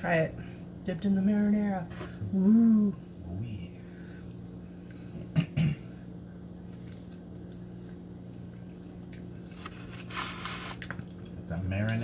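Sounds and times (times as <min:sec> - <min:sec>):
steady electrical hum: 0:00.0 - 0:12.0
chewing crispy pizza: 0:06.2 - 0:12.0.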